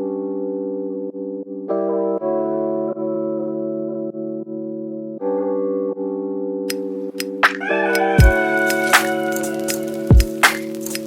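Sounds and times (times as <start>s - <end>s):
background music of held chords: 0.0s - 11.0s.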